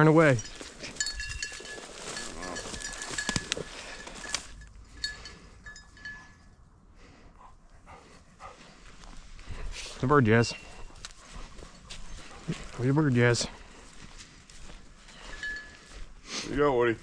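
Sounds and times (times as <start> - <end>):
brush rustling: 0.0 - 5.2
collar bell jingling: 0.0 - 6.7, 10.2 - 16.2.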